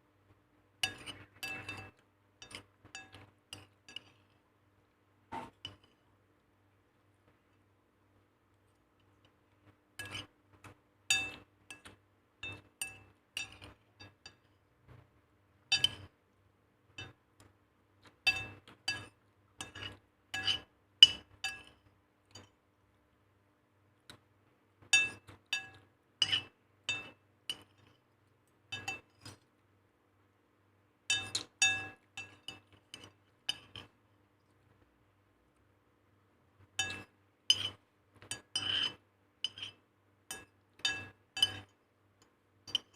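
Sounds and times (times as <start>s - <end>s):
spoon clinking against pot: 0.8s - 4.3s, 10.0s - 10.3s, 11.1s - 14.5s, 15.7s - 16.2s, 17.0s - 17.2s, 18.2s - 22.5s, 24.9s - 28.0s, 28.7s - 29.4s, 31.1s - 34.0s, 36.8s - 42.9s.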